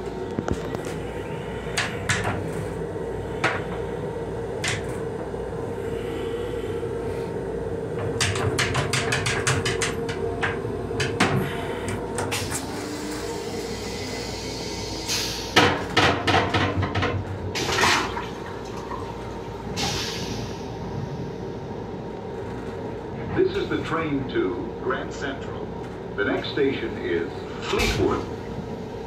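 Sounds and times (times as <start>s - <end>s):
railcar hum with held tone: 0.0s - 29.0s
knocks and rattles: 8.0s - 11.4s, 15.6s - 18.0s.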